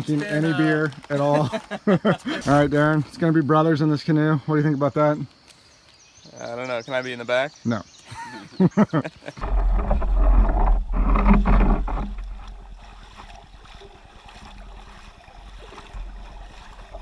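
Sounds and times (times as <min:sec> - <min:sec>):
canoe moving through water: 0:09.1 - 0:17.0
wind rumbling on microphone: 0:09.4 - 0:17.0.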